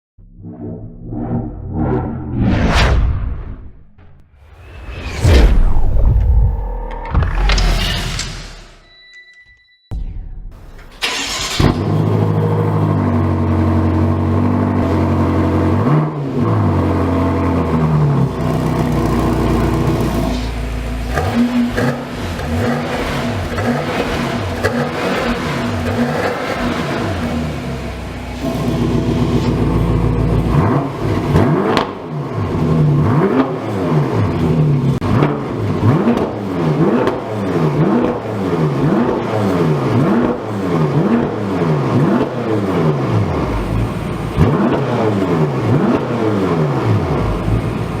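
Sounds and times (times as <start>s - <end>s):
car engine revving: 11.0s - 48.0s.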